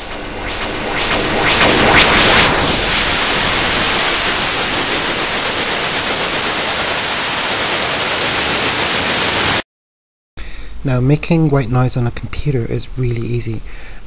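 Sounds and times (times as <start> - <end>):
white noise hiss: 0.0 - 9.6.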